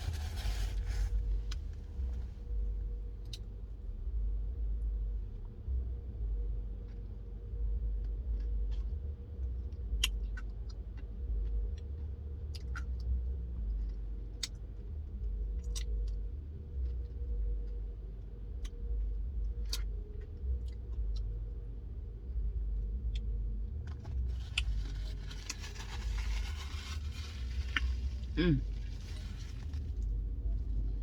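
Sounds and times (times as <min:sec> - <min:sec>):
car cabin rumble: 0:00.0 - 0:11.8, 0:12.6 - 0:31.0
person eating: 0:24.3 - 0:30.0.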